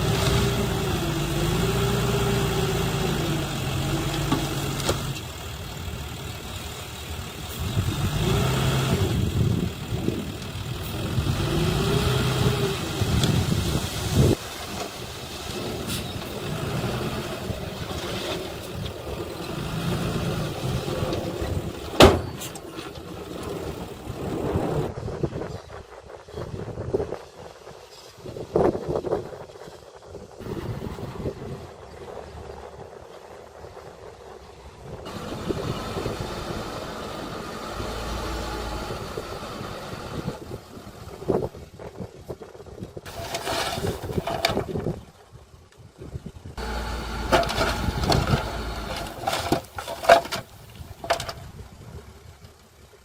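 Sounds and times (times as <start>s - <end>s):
heavy machinery engine running: 0.0s - 24.9s, 34.4s - 41.4s, 46.6s - 51.4s.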